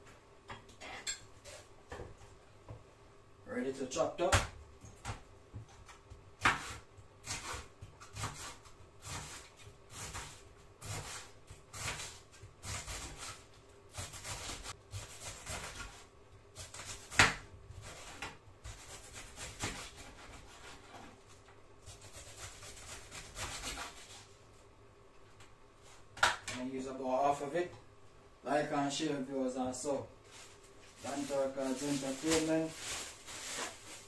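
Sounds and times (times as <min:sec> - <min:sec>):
knife slicing cabbage: 0:05.8 - 0:21.2, 0:21.8 - 0:24.3.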